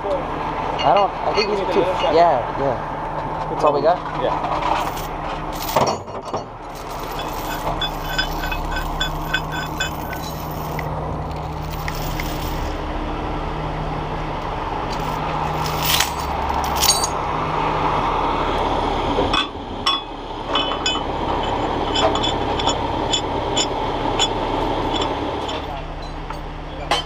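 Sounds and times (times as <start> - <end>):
truck engine idling: 0.0 - 27.0
chain clinking and scraping: 4.4 - 12.8, 14.9 - 17.2, 19.9 - 26.4.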